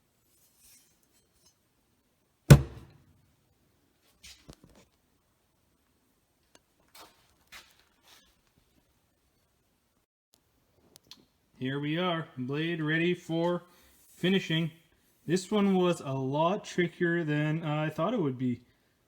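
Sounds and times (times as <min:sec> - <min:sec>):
loud sharp knock with ringing: 0:02.5 - 0:02.9.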